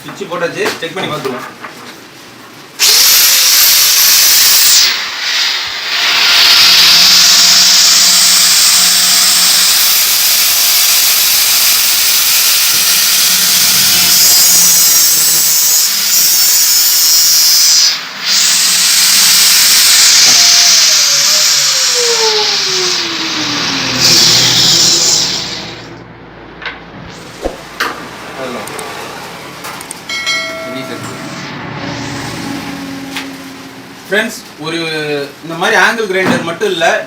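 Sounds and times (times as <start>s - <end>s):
angle grinder whirring: 2.8s - 26.0s.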